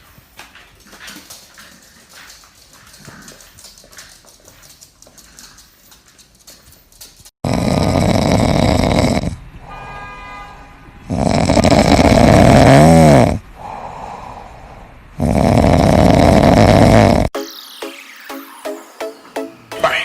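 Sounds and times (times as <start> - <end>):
quiet breaths: 4.5 - 6.2, 13.4 - 15.2
loud snoring: 7.4 - 9.4, 11.1 - 13.4, 15.2 - 17.3.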